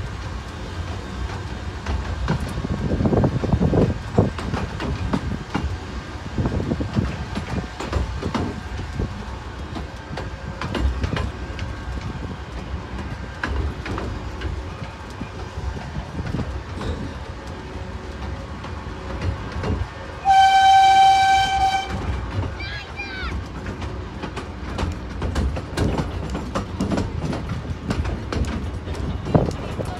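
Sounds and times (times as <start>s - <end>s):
miniature train rumbling: 0.0s - 29.9s
wheels clicking over rail joints: 0.0s - 29.9s
locomotive warning blast: 19.8s - 22.5s.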